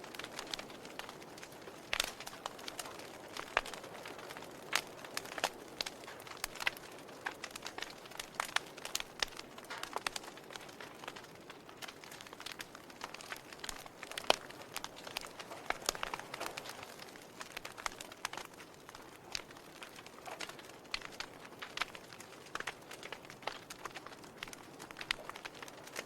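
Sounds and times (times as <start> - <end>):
log fire crackling: 0.0 - 26.0.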